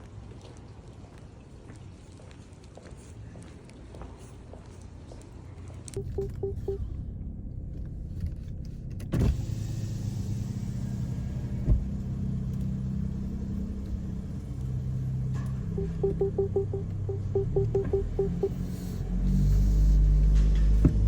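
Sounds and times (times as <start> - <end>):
turn signal clicking: 6.0 - 6.9, 15.7 - 18.6
car engine droning: 6.0 - 21.0.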